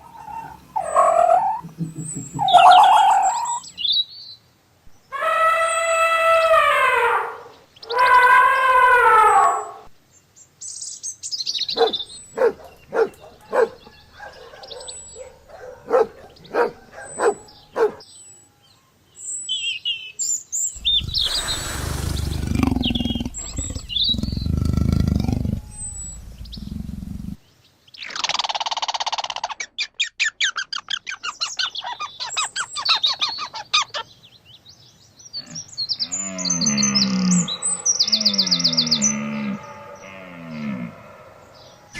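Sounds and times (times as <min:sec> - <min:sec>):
rough noisy animal call: 0:00.0 - 0:03.7, 0:20.8 - 0:27.4, 0:35.4 - 0:41.9
animal chirping and clicking: 0:20.8 - 0:27.4
cow mooing: 0:20.8 - 0:27.4, 0:36.2 - 0:41.9.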